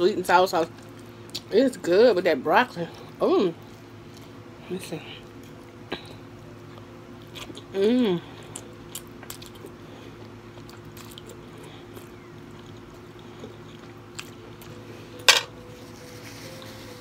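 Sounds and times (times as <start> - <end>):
faint steady hum: 0.0 - 17.0
person chewing food: 5.3 - 7.7, 8.3 - 14.8.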